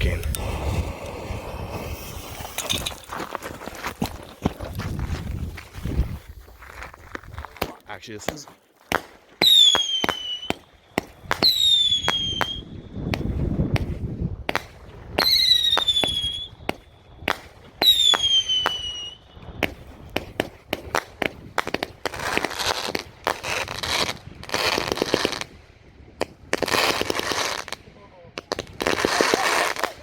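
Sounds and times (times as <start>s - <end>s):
rapid firework crackling: 0.0s - 4.7s, 7.6s - 25.6s, 26.2s - 27.8s, 28.4s - 30.0s
falling firework whistles: 0.4s - 3.1s, 9.4s - 13.9s, 15.2s - 20.5s
firework launch pops and bangs: 7.4s - 25.6s.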